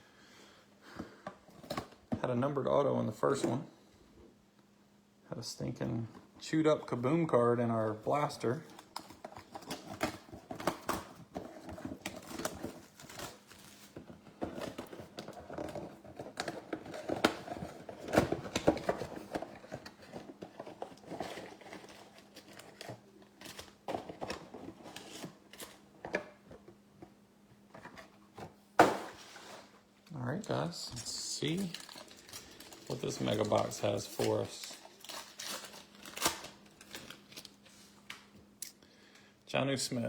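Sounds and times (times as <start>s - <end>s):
faint steady hum: 0.0s - 40.0s
cardboard box crinkling and tearing: 8.8s - 25.8s, 30.4s - 37.6s.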